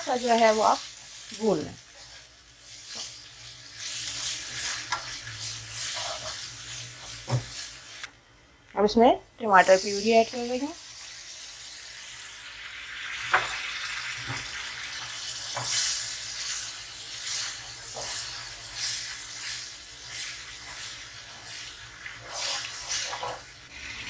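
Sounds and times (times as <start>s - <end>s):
sauce sizzling in hot oil: 0.0s - 8.1s, 9.4s - 24.0s
spatula stirring in wok: 0.0s - 8.1s, 14.8s - 24.0s
spatula scraping pan: 1.9s - 8.1s, 14.2s - 24.0s.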